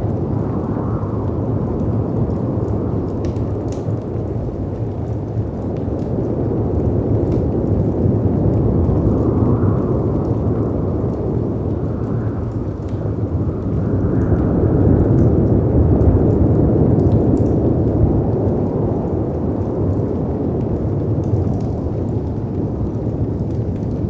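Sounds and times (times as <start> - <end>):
rushing wind: 0.0 - 24.0
wood fire crackling: 0.0 - 24.0.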